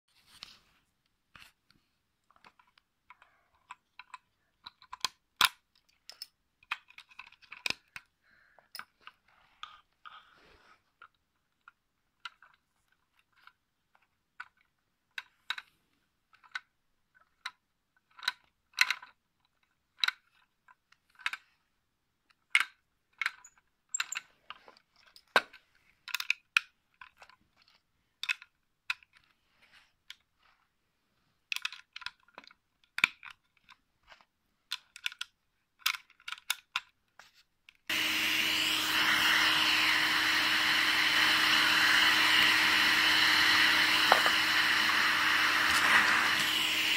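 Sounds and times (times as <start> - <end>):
small clicks and taps: 1.0 - 10.1, 11.0 - 21.6, 31.5 - 37.9
model engine whirring: 37.9 - 46.9.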